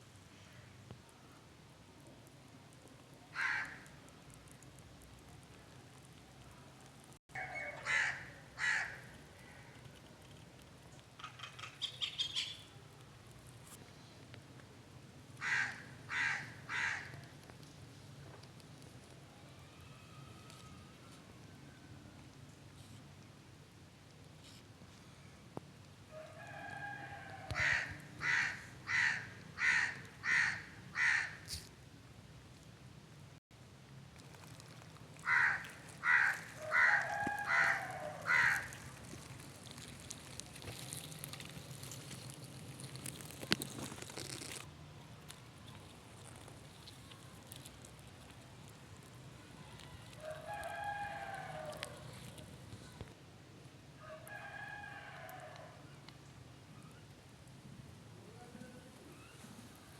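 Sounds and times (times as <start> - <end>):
crow cawing: 3.3 - 3.9, 7.6 - 9.0, 15.4 - 17.2, 27.6 - 31.5, 35.2 - 39.2
rooster crowing: 26.1 - 31.3, 35.2 - 38.7, 50.0 - 52.1, 54.0 - 55.8.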